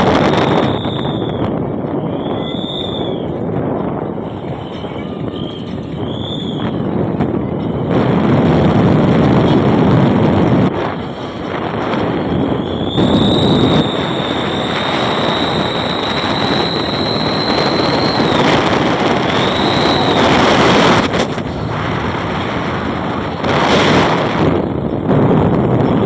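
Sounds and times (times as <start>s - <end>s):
car exhaust whistle howling: 0.0s - 3.4s, 4.6s - 6.8s, 11.6s - 21.6s
wind and road noise: 0.0s - 26.0s.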